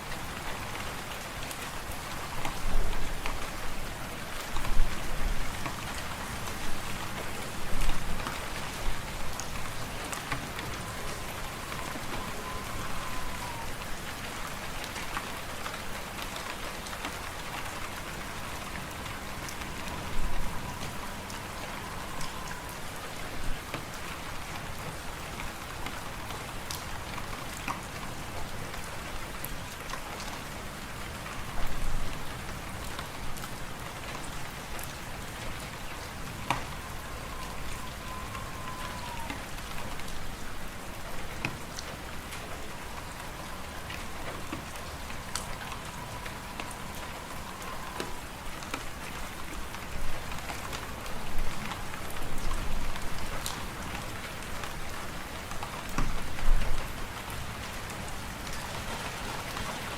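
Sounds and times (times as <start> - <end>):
faint wind whistle: 7.7 - 14.6, 18.0 - 24.8, 35.2 - 41.6, 42.2 - 53.8.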